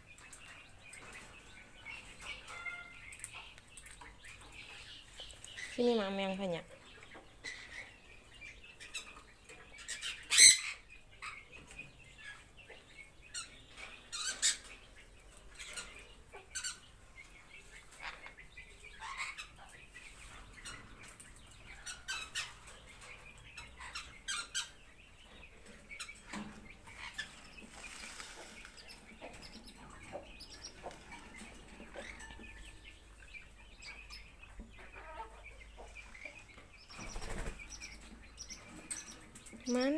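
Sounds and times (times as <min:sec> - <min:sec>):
parrots squawking and chirping: 0:02.3 - 0:03.2, 0:09.8 - 0:11.4, 0:19.0 - 0:19.6, 0:23.6 - 0:24.8, 0:26.0 - 0:32.5, 0:33.8 - 0:36.4.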